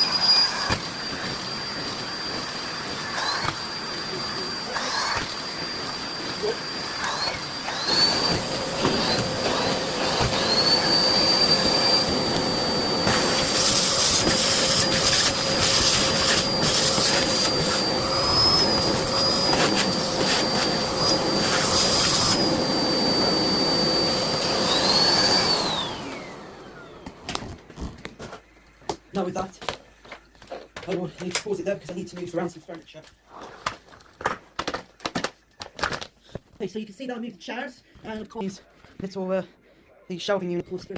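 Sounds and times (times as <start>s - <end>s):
vacuum cleaner motor whine: 0.0s - 31.4s.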